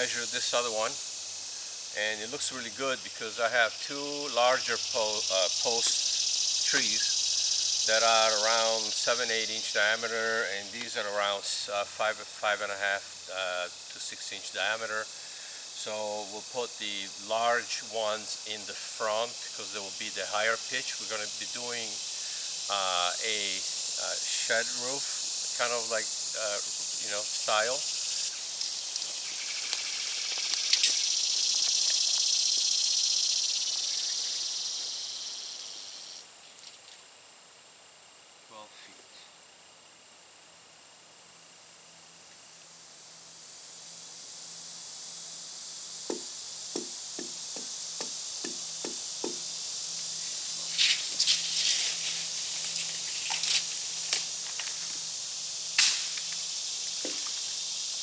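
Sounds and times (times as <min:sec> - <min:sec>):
insects buzzing: 0:00.0 - 0:58.0
steady high hiss: 0:00.0 - 0:58.0
dry leaves rustling and crackling: 0:28.4 - 0:32.2, 0:50.2 - 0:55.2, 0:55.8 - 0:57.7.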